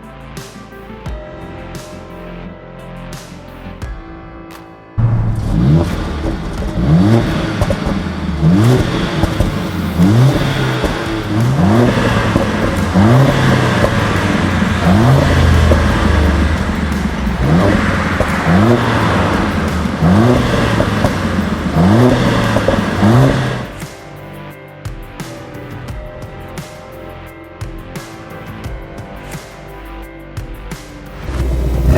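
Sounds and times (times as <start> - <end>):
car engine revving: 5.0 - 23.9, 31.2 - 31.9.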